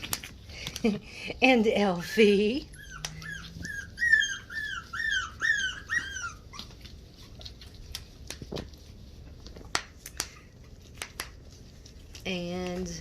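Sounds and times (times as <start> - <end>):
puppy whimpering: 2.4 - 7.9
faint clicks and taps: 6.6 - 13.0.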